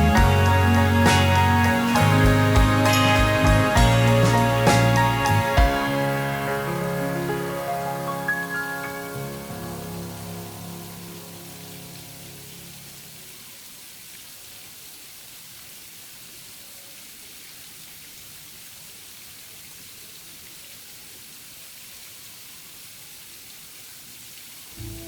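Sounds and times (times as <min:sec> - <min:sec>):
steady rain hiss: 0:00.0 - 0:25.0.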